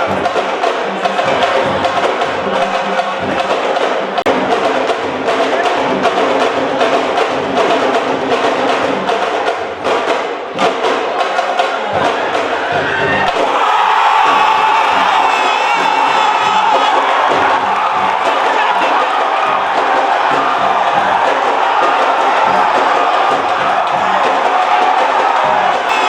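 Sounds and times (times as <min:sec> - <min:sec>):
rhythmic drumming: 0:00.0 - 0:26.0
wood-block-like strikes: 0:00.0 - 0:26.0
dense steady din: 0:10.5 - 0:26.0.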